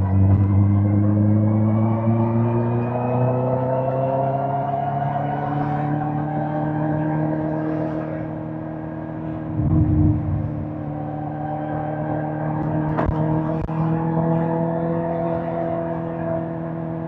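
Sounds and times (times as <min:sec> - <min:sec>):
motorcycle engine running: 0:09.5 - 0:10.9.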